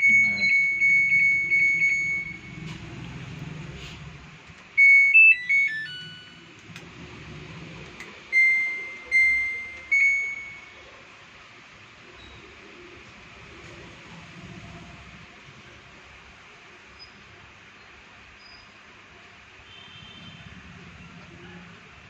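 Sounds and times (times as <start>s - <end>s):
washing machine control panel beeps: 0.0s - 2.7s, 4.8s - 6.6s, 8.3s - 10.8s.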